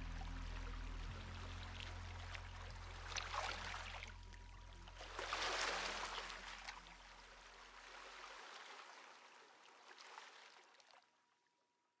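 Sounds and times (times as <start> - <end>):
low hum: 0.0 - 8.0
water drips and splashes: 0.0 - 11.0.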